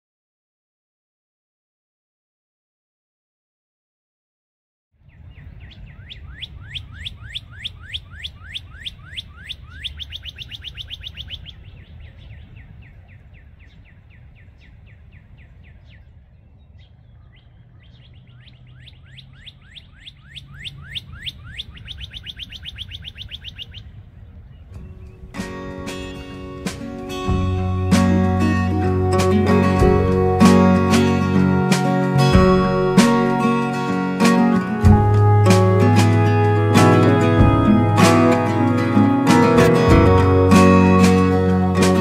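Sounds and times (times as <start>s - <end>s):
songbird chirping: 5.0s - 42.0s
low steady rumble: 27.2s - 33.6s, 34.9s - 36.6s.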